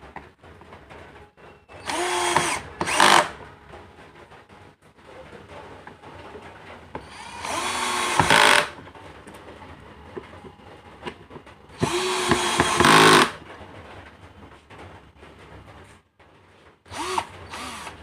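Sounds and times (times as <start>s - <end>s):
cordless drill whining: 1.8s - 3.3s, 7.0s - 8.8s, 11.8s - 13.4s, 16.9s - 18.0s.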